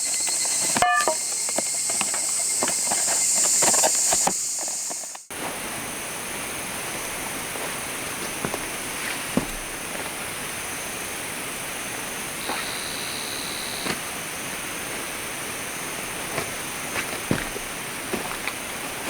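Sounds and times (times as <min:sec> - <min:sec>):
high steady tone: 0:00.8 - 0:01.3.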